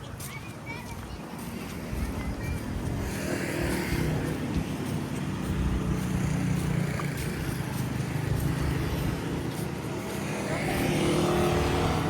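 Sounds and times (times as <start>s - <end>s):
vehicle engine humming: 5.4s - 12.0s.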